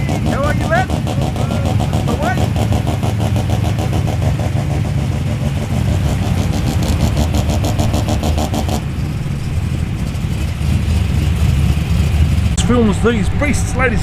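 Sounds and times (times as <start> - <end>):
car engine idling: 0.0 - 14.0
pulsing exhaust note: 0.0 - 14.0.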